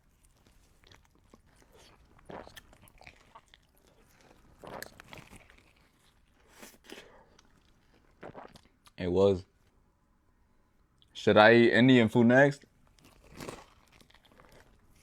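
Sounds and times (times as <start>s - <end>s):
bites and crunches: 0.0s - 9.0s, 12.9s - 15.0s
person chewing food: 0.0s - 9.0s, 12.6s - 15.0s.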